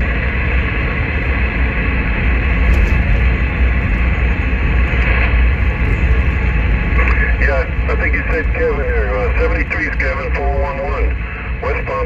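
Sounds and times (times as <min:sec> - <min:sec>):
low vehicle rumble: 0:00.0 - 0:12.0
radio static hiss: 0:04.6 - 0:12.0.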